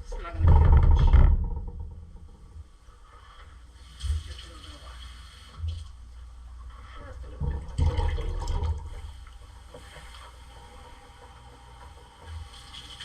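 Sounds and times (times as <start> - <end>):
water pouring into a pot: 7.7 - 9.2.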